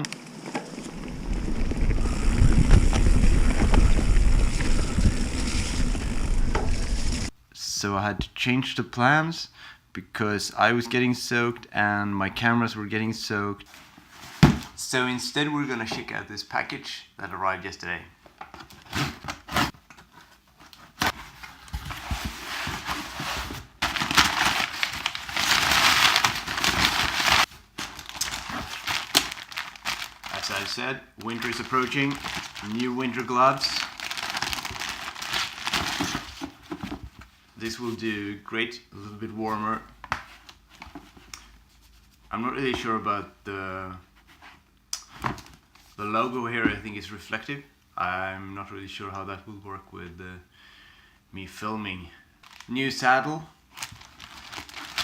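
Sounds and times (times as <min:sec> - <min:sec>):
wind rumble on microphone: 0:00.9 - 0:07.3
packaging crinkling and rustling: 0:18.5 - 0:37.4, 0:52.4 - 0:52.8, 0:53.7 - 0:55.0.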